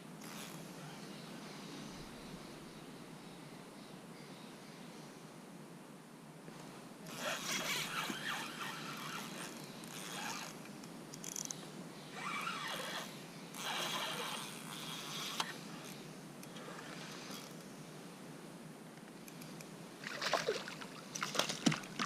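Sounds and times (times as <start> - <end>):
fishing reel whirring: 7.1 - 10.6.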